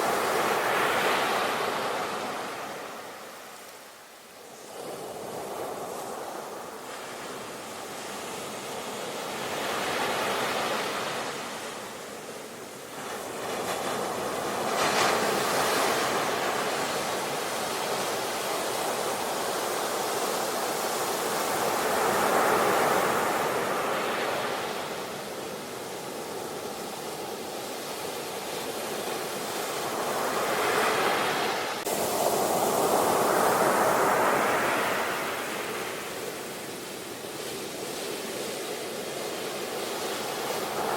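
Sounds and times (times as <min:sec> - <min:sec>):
ocean waves breaking: 0:28.8 - 0:38.3.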